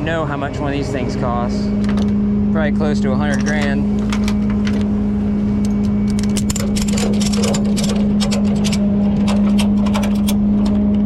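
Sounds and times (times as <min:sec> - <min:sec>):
truck engine running: 0:00.0 - 0:11.0
ratchet strap clicking: 0:05.6 - 0:10.4.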